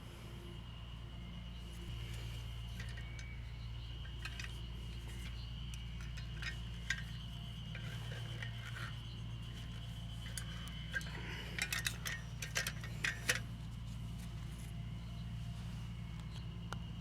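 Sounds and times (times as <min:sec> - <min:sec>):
steady low hum: 0:00.0 - 0:17.0
small hard objects clinking: 0:01.9 - 0:14.1.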